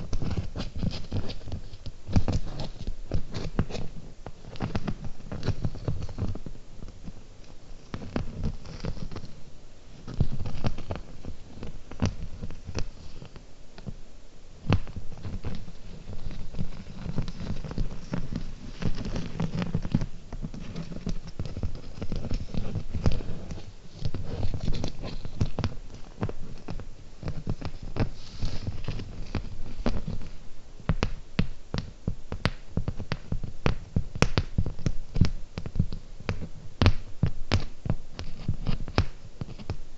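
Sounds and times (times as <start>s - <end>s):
low rumble of mic touched: 0.0s - 31.0s.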